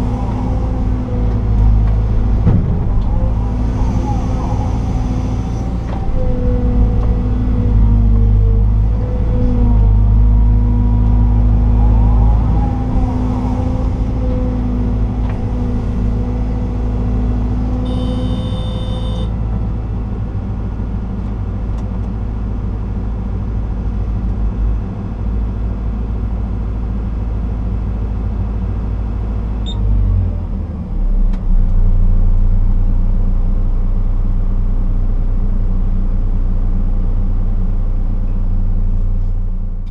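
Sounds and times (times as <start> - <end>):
excavator engine and hydraulics: 0.0 - 39.9
brief high tone: 17.8 - 19.4
pitched whine: 17.8 - 19.4.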